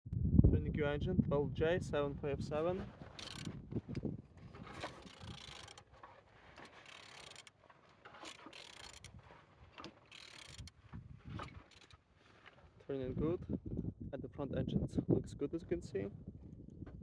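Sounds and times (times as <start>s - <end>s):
engine turned over by hand: 3.1s - 3.5s, 4.7s - 6.0s, 6.6s - 9.2s, 9.8s - 10.8s, 11.4s - 12.0s.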